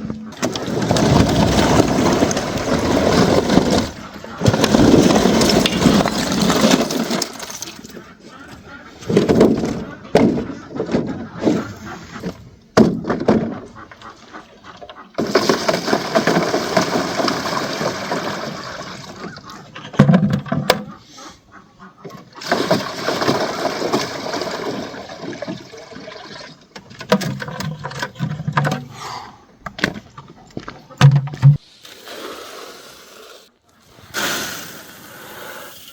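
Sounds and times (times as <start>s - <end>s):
water pouring and splashing: 0.4s - 8.0s, 15.2s - 19.7s, 22.4s - 28.4s.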